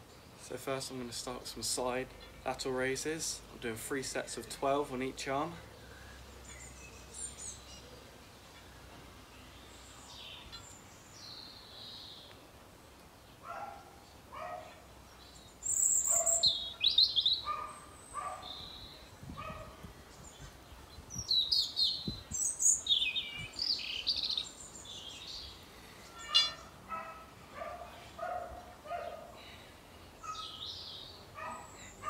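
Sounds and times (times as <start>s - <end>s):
birds chirping and singing: 4.1s - 12.4s, 13.4s - 29.6s, 30.2s - 32.0s
short bird call: 26.1s - 26.7s.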